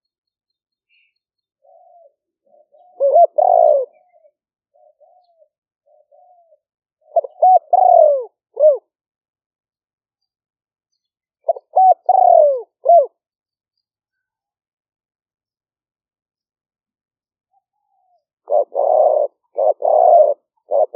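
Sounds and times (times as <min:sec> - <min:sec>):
dove cooing: 0:00.9 - 0:09.0, 0:11.4 - 0:13.2, 0:17.5 - 0:20.9.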